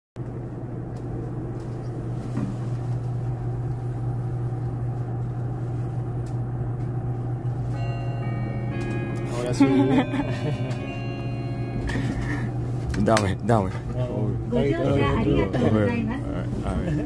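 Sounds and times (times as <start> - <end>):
train hum and rumble inside carriage: 0.2 - 17.0.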